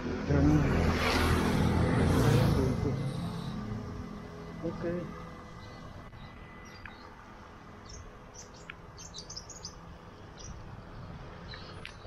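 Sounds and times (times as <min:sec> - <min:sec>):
birds chirping: 0:03.0 - 0:12.0.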